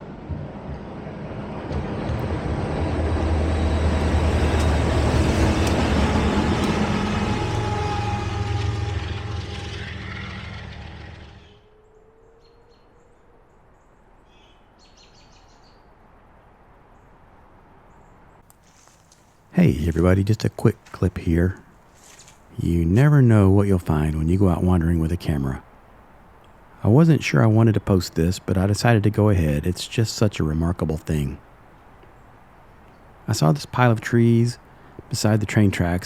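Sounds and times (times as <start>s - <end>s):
train passing rumble: 0.0s - 12.2s, 18.7s - 36.0s
faint high bird chirps: 11.4s - 15.9s.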